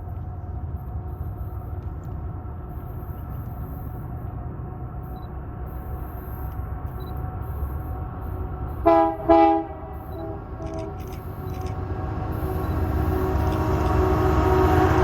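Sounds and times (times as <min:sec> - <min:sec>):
train rumbling: 0:00.0 - 0:15.0
locomotive air horn blasts: 0:08.8 - 0:11.0
faint horn tones: 0:08.8 - 0:11.2.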